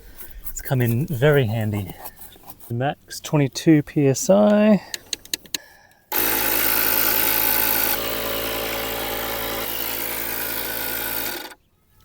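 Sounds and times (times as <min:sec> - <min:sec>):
tyre inflator pumping air: 0:06.1 - 0:11.6.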